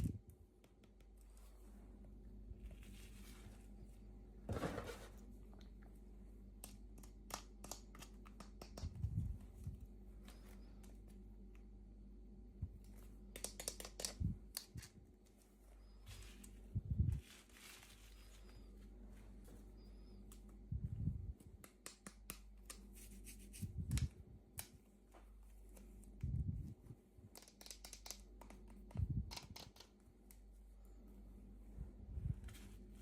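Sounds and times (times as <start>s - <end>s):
small clicks and taps: 6.6s - 9.1s, 12.8s - 15.0s, 27.3s - 30.4s.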